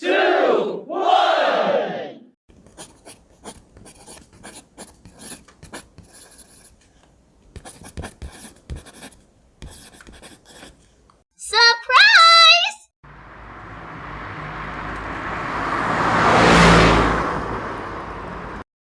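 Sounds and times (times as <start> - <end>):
scratching and rubbing strokes: 2.5 - 6.8, 7.6 - 10.9.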